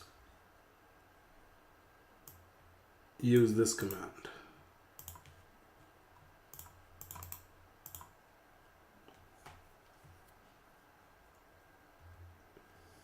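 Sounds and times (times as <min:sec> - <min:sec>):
computer keyboard typing: 0:05.0 - 0:05.4, 0:06.5 - 0:08.1.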